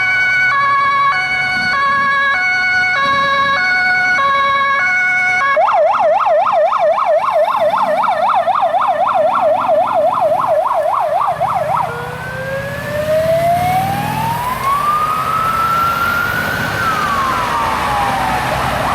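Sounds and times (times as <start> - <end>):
fire engine siren: 0.0 - 18.9.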